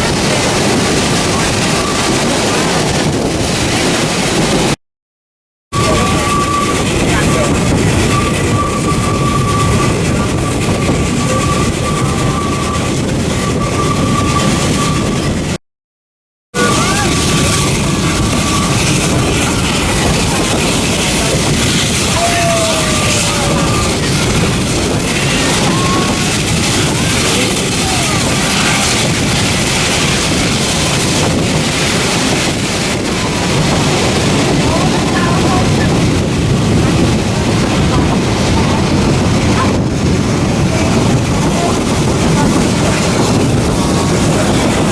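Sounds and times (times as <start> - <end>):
train running on rails: 0.0 - 4.8, 5.7 - 15.6, 16.6 - 44.9
wind buffeting microphone: 0.0 - 4.8, 5.7 - 15.6, 16.6 - 44.9
low drone: 16.6 - 33.5.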